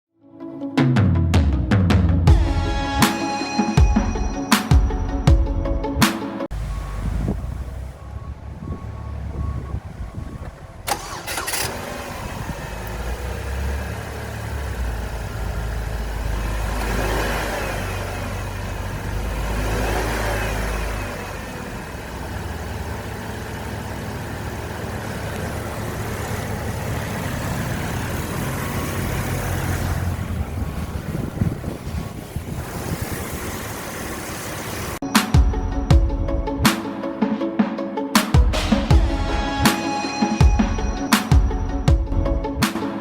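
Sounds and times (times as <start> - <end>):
car engine starting and idling: 4.0 - 37.2, 38.5 - 42.8
engine revving: 6.6 - 35.1.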